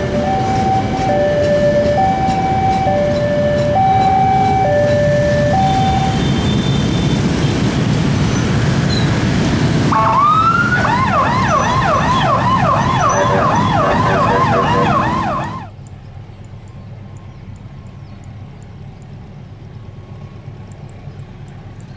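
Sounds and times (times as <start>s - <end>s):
electronic siren wailing: 0.0s - 6.6s, 9.9s - 15.7s
passing train rumble: 0.0s - 15.8s.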